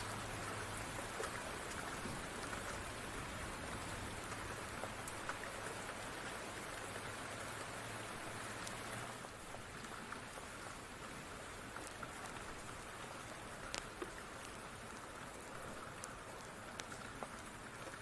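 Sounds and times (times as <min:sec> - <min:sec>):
steady rain falling: 0:00.0 - 0:18.0
small sharp pops and ticks: 0:04.2 - 0:07.5, 0:08.6 - 0:18.0.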